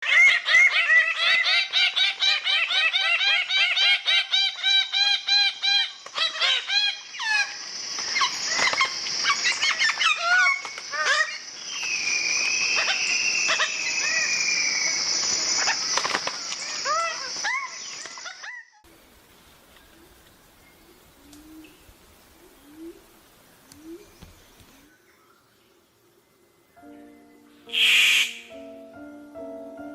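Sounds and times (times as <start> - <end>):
harsh bird calls: 0.0 - 18.7, 27.7 - 28.6
steady high hiss: 5.9 - 18.2, 18.9 - 29.9
long falling bird whistle: 7.4 - 18.0, 27.7 - 28.6.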